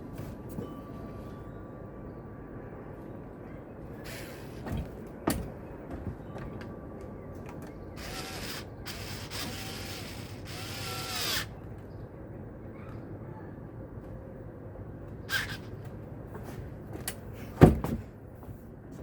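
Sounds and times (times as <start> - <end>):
cordless drill driving screws: 8.0 - 11.5.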